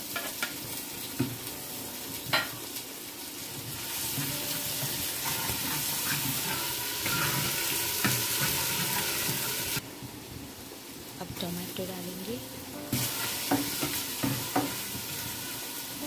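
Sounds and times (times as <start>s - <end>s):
onions sizzling in hot oil: 0.0s - 16.0s
spatula scraping a pot: 3.9s - 9.8s.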